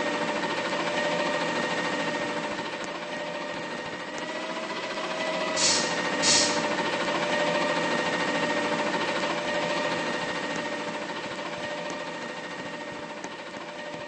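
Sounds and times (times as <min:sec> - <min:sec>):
garbage truck mechanical whine: 0:00.0 - 0:14.0
hissing air bursts: 0:05.6 - 0:06.6.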